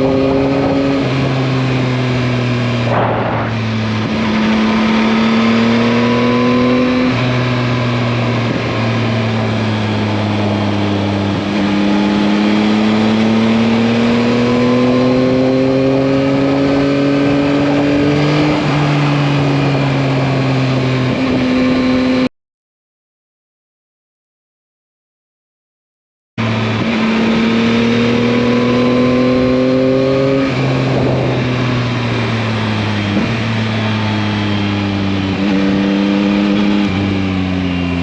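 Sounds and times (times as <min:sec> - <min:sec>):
wind noise: 0:00.0 - 0:22.2, 0:26.6 - 0:34.6
motorcycle engine running: 0:00.0 - 0:22.3, 0:26.4 - 0:38.0.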